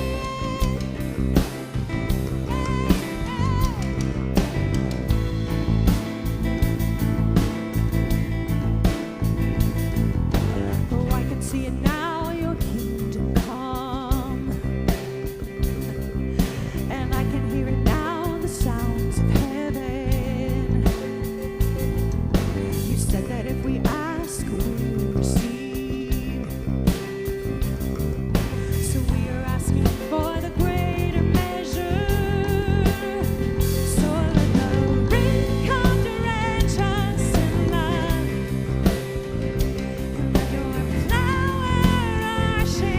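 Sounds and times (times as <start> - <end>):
person singing with vibrato: 0.0 - 1.7, 2.3 - 4.4, 10.9 - 14.8, 16.4 - 21.4, 22.7 - 27.2, 28.5 - 39.1, 39.8 - 42.9
band playing: 0.0 - 42.9
drums: 0.0 - 42.9
guitar: 0.0 - 42.9.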